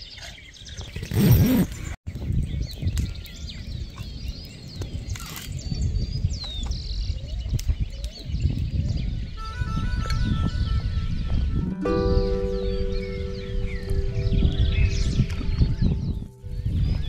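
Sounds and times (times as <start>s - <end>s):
birds chirping: 0.0s - 17.0s
music: 9.4s - 17.0s
low rumble: 11.4s - 17.0s.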